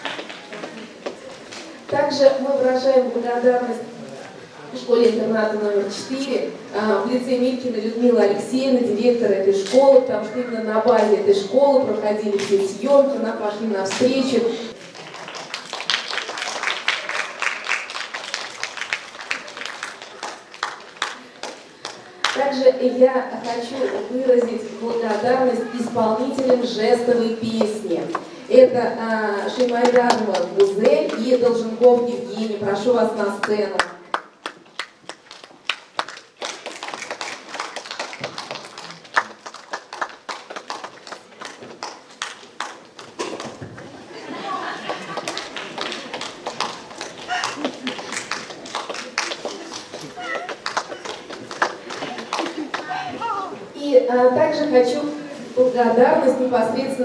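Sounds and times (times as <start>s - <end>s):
audience applauding: 0.0s - 1.0s, 14.7s - 22.4s, 33.8s - 53.6s.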